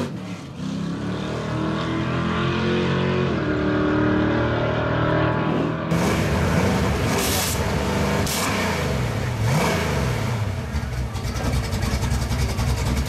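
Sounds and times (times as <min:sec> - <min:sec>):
car engine revving in blips: 0:00.0 - 0:13.0.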